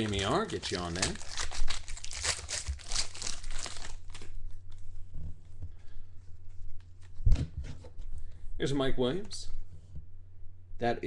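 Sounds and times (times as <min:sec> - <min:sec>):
card pack wrapper crinkling: 0:00.0 - 0:04.4.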